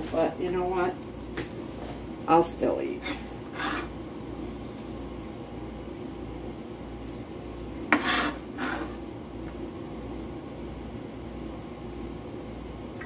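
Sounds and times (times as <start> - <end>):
food sizzling in a skillet: 0.0 - 13.0
scraping rustles on cutting board: 3.0 - 3.9, 7.9 - 9.0.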